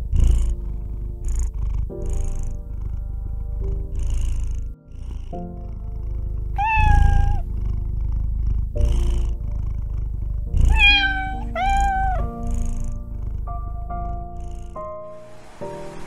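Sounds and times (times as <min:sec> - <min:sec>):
cat meowing: 0:06.6 - 0:07.5, 0:10.6 - 0:12.6.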